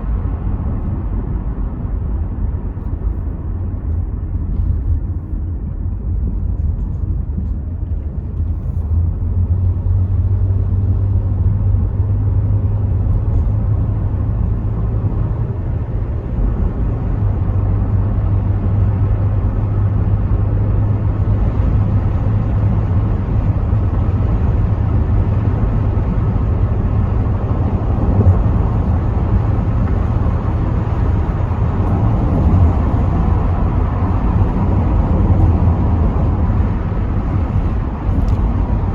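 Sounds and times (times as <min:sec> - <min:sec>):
car engine and tyres rumbling: 0:00.0 - 0:38.9
road and wind noise: 0:00.0 - 0:38.9.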